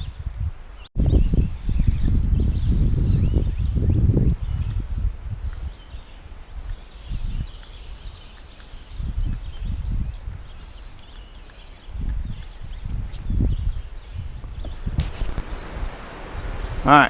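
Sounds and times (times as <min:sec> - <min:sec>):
low thumps and rumbles: 0:12.0 - 0:16.9.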